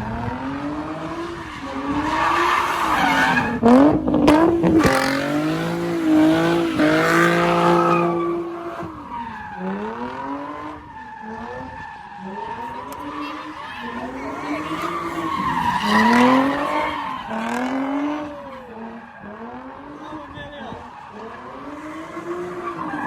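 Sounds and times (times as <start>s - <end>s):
car engine revving hard: 0.0s - 8.9s, 9.6s - 23.0s
tyres squealing and skidding: 0.0s - 23.0s.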